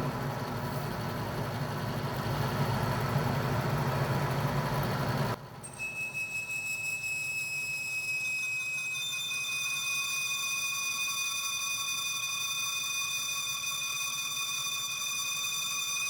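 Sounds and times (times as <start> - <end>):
faint lathe hum: 0.0 - 16.0
lathe tool screeching on steel: 5.6 - 16.0.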